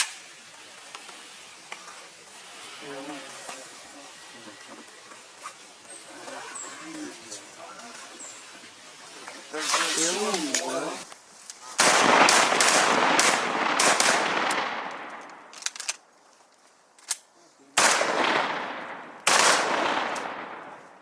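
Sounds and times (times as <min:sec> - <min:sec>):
shotgun shots with echo: 0:11.8 - 0:15.5, 0:17.8 - 0:21.0.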